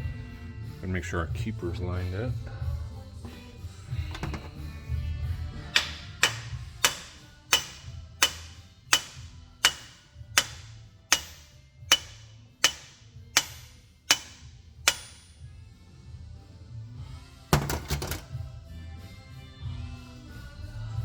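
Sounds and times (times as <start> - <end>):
hammer tapping on metal: 5.7 - 15.3.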